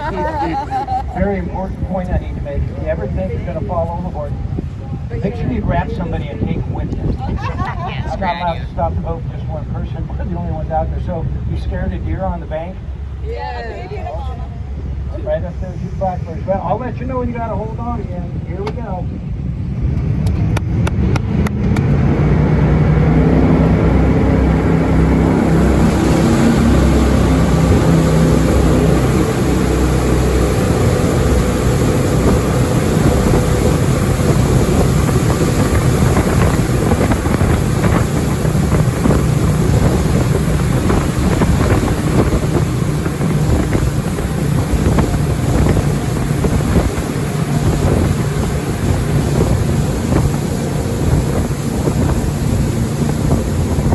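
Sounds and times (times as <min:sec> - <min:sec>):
jet boat engine running hard: 0:00.0 - 0:53.9
rush of wind and water: 0:00.0 - 0:53.9.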